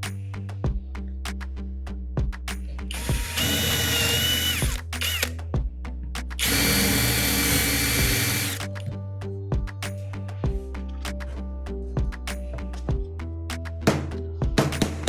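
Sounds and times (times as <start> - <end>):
background music: 0.0 - 15.0
power drill whining: 2.9 - 5.3, 6.4 - 8.6.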